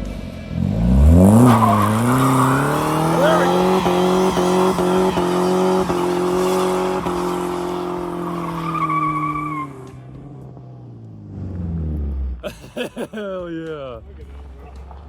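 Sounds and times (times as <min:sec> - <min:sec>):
engine revving: 0:00.0 - 0:12.4
tire squeal: 0:00.6 - 0:10.3.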